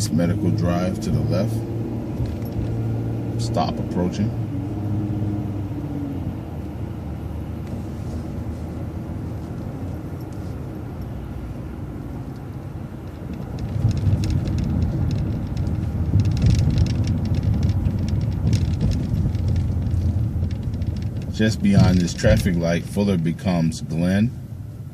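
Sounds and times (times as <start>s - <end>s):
bus engine and road rumble: 0.0s - 24.9s
rattling clicks: 12.3s - 22.0s.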